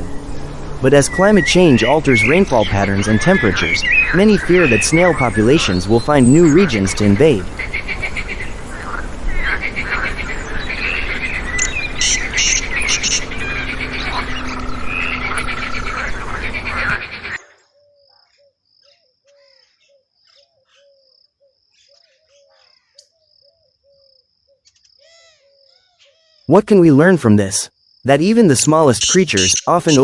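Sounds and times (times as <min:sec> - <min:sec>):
dense background noise: 0:00.0 - 0:17.5, 0:28.1 - 0:30.0
insects chirping and trilling: 0:00.0 - 0:26.5, 0:27.6 - 0:30.0
bird calls: 0:00.0 - 0:26.6, 0:28.7 - 0:30.0.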